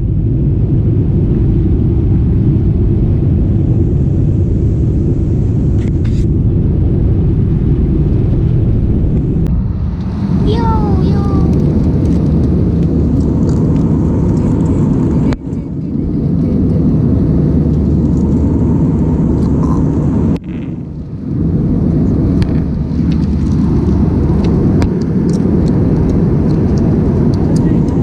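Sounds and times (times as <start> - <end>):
airliner cabin rumble: 0.0 - 28.0.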